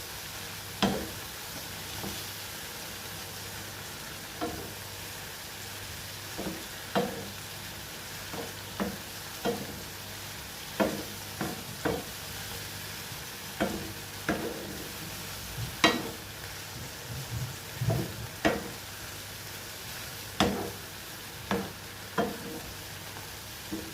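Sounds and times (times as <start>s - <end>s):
mushrooms sizzling in frying pan: 0.0s - 23.9s
utensil scraping and knocking pan: 21.5s - 22.7s.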